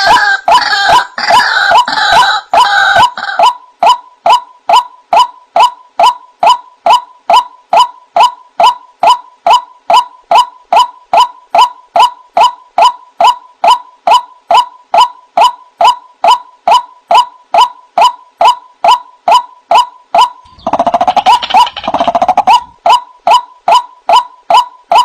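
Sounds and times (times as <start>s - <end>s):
waterhen wak call: 0.0s - 3.6s, 20.2s - 23.9s.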